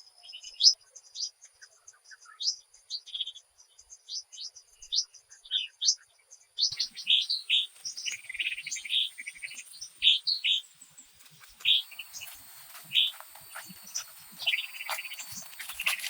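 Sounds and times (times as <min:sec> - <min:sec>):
small birds chirping: 0:00.0 - 0:16.0
faint hiss: 0:06.8 - 0:16.0.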